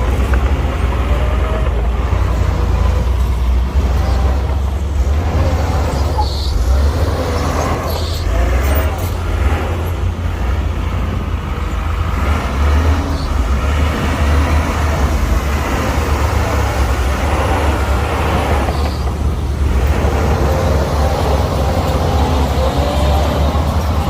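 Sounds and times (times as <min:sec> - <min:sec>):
heavy diesel machinery running: 0:00.0 - 0:24.0.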